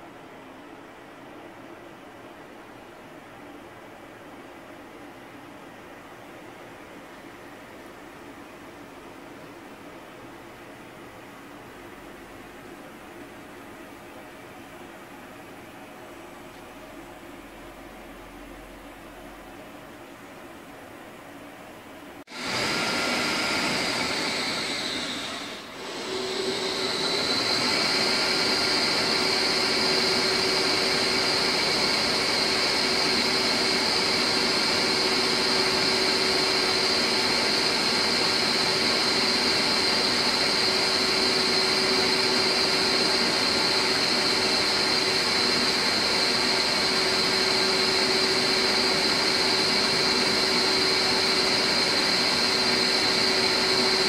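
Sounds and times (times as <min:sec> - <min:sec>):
lathe high-pitched whine: 0:22.3 - 0:54.0.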